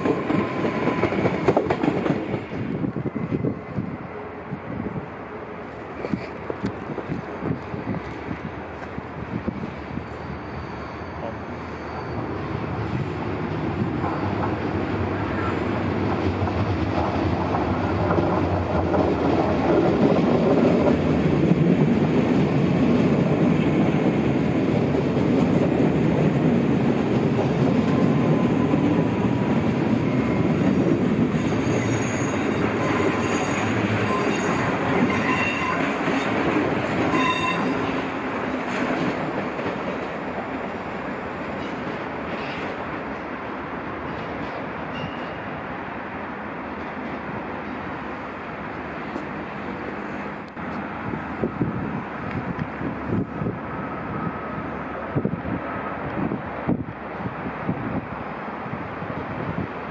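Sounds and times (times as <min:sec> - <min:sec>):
train wheels rumbling on rails: 0:00.0 - 0:59.9
high wheel squeals: 0:09.6 - 0:15.9, 0:30.0 - 0:36.3, 0:37.1 - 0:38.0.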